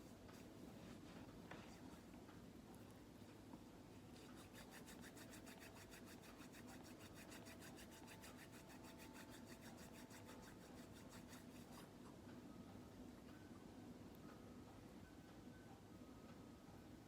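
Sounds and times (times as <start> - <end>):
quick rubbing strokes: 4.2 - 11.9.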